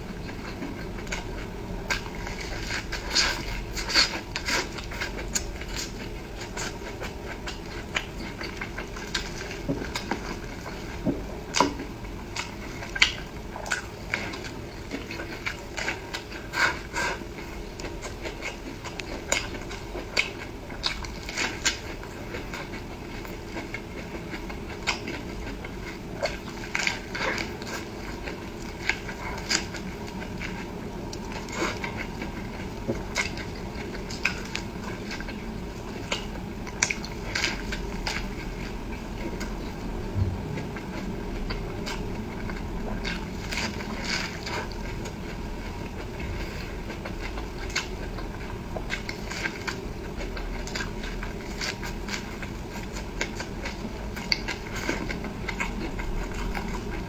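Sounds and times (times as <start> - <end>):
chewing and mouth clicks: 0.1 - 57.0
low hum: 38.6 - 47.5.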